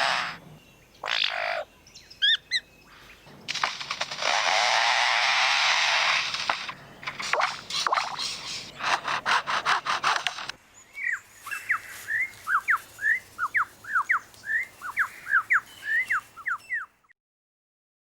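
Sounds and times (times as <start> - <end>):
bird mimicking chainsaw: 0.0 - 0.4, 3.5 - 16.6
sharp whistled bird notes: 11.0 - 17.1.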